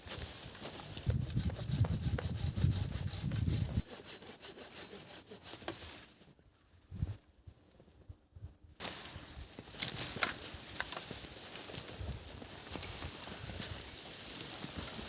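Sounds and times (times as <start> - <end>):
hand saw cutting wood: 0.9 - 5.9.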